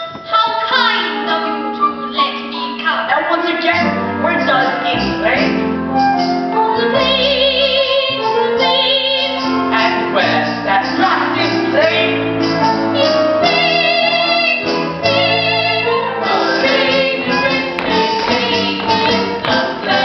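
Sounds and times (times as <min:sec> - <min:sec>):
instrumental accompaniment: 0:00.0 - 0:20.0
woman singing with vibrato: 0:06.8 - 0:09.9, 0:13.0 - 0:20.0
voices singing: 0:13.0 - 0:20.0.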